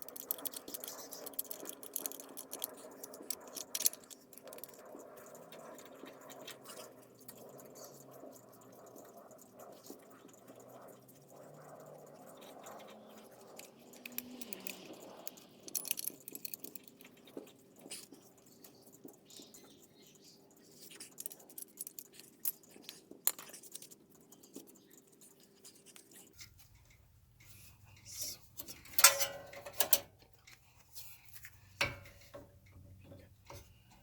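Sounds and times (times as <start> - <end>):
faint steady hum: 24.2 - 34.0
handling clicks and knocks: 26.4 - 34.0.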